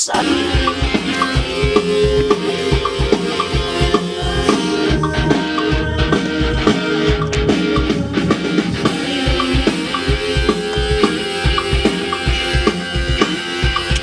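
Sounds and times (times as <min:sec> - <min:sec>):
drum kit beat: 0:00.0 - 0:14.0
rock band instrumental: 0:00.0 - 0:14.0.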